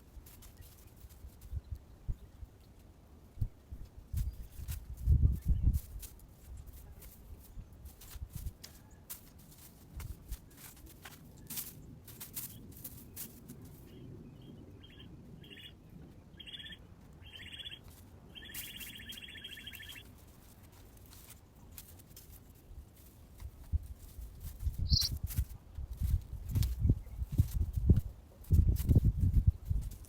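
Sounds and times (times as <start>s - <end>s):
faint clicks and rustles: 0.0s - 14.1s, 16.9s - 30.0s
bird singing with trill: 14.4s - 17.8s, 18.4s - 20.0s, 24.8s - 25.2s.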